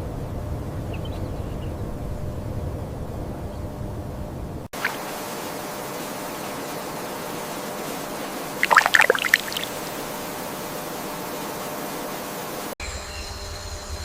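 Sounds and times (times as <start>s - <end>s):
running water: 4.8s - 5.4s, 8.5s - 10.1s.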